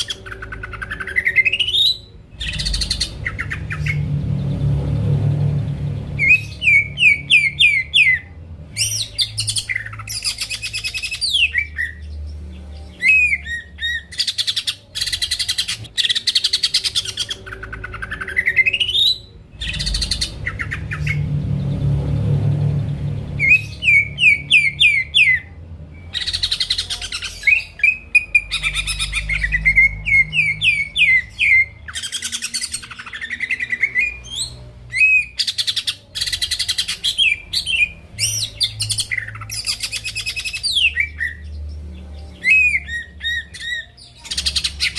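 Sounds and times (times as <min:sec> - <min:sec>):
low hum: 0:00.0 - 0:14.2, 0:15.1 - 0:35.4
bird singing chirps and trills: 0:00.0 - 0:44.9.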